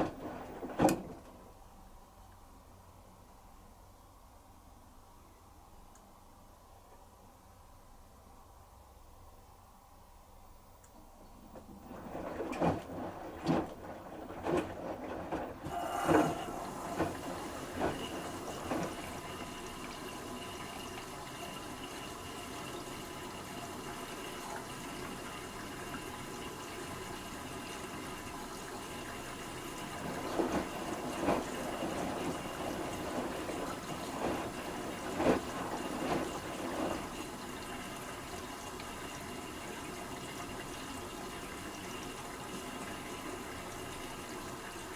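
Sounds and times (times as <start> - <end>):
water pouring into washing machine: 0.0 - 1.4, 11.5 - 44.9.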